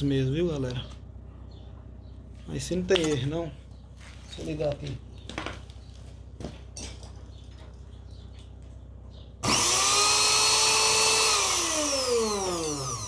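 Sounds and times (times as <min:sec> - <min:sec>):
blender motor whine: 0:09.4 - 0:13.0.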